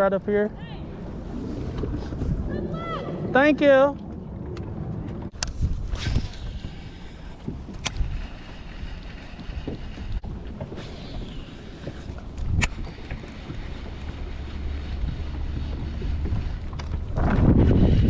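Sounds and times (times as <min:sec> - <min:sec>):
boat and water noise: 0:00.0 - 0:18.0
wind rumbling on microphone: 0:00.5 - 0:18.0
sharp clicks: 0:05.4 - 0:08.5.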